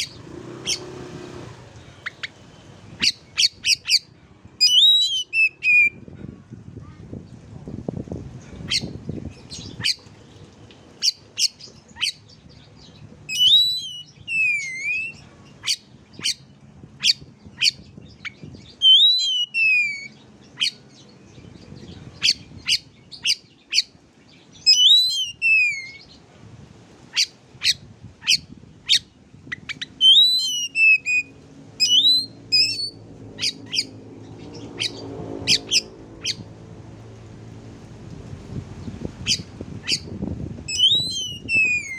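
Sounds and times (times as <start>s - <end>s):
bird whistle falling in pitch: 40.7s - 41.9s.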